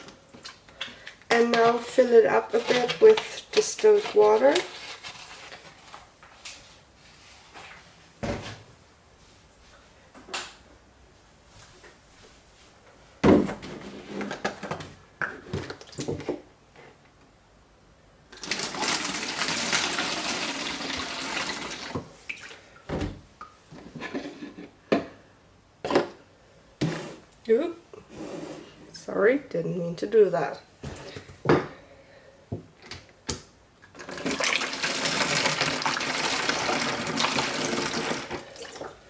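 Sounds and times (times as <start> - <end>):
water pouring into plastic container: 18.3 - 22.0, 33.9 - 38.9.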